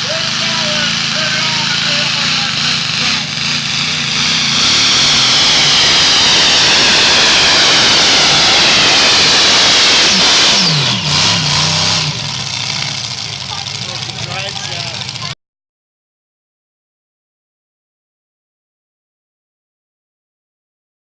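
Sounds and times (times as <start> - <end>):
tractor engine at full throttle: 0.0 - 15.4.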